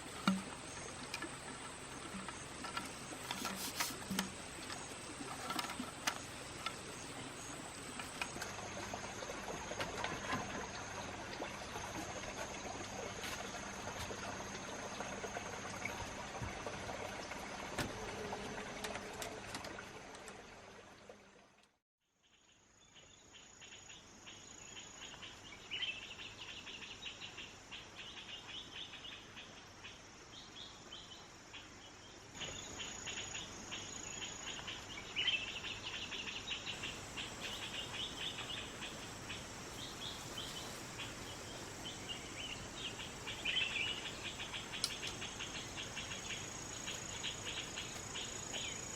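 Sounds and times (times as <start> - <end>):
insects trilling: 0.0 - 16.3, 32.4 - 48.9.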